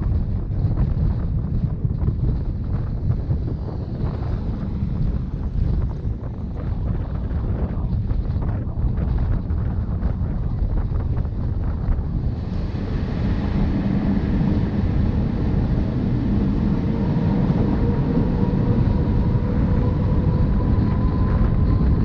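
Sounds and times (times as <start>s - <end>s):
train wheels rumbling on rail: 0.0s - 22.0s
wind noise: 0.0s - 22.0s
faint rising whine: 10.8s - 22.0s.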